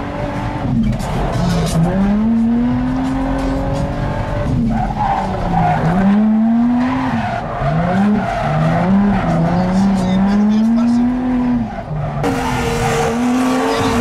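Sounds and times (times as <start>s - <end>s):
car engine revving hard: 0.0s - 14.0s
tyres squealing and skidding: 4.4s - 14.0s.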